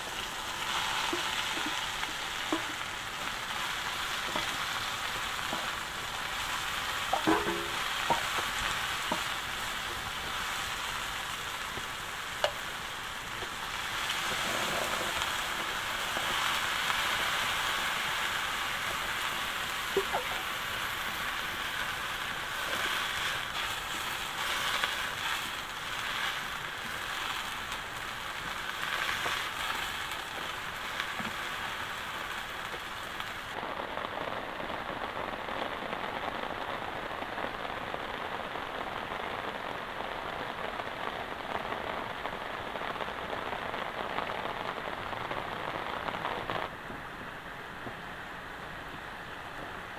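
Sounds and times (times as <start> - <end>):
food sizzling in a pan: 0.0 - 33.7
heavy rain: 0.0 - 49.9.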